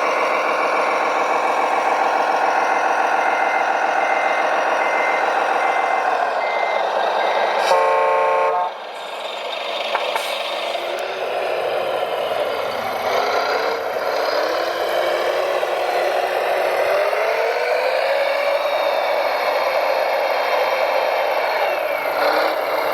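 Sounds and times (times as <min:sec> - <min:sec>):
diesel engine running: 0:00.0 - 0:22.9
reversing beeper: 0:00.2 - 0:07.7.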